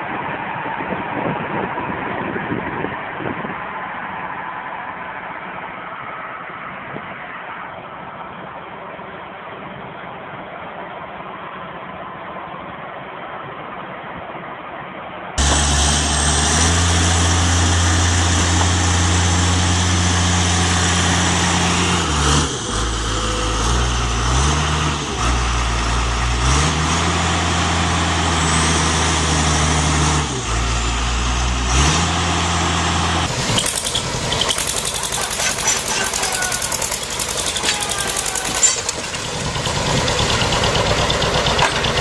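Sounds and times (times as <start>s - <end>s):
heavy diesel engine revving: 15.4s - 42.0s.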